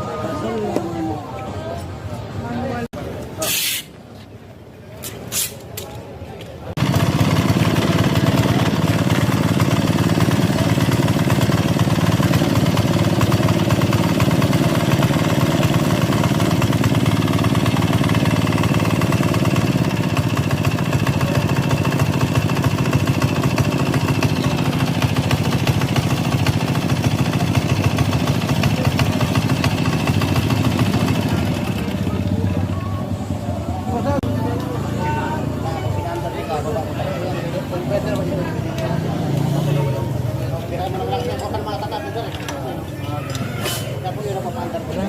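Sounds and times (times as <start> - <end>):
boat motor running: 6.8 - 34.6.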